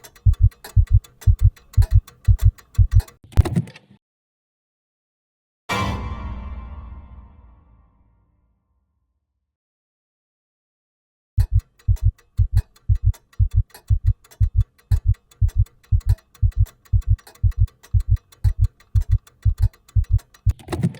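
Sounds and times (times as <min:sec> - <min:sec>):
faint ticking clicks: 0:00.0 - 0:03.2, 0:11.4 - 0:20.9
heartbeat thumps: 0:00.2 - 0:03.0, 0:11.5 - 0:20.2.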